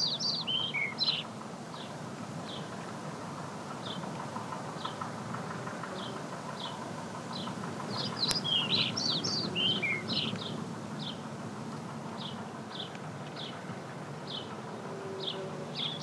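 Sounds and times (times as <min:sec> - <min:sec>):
small birds chirping: 0:00.0 - 0:02.8, 0:05.9 - 0:11.2.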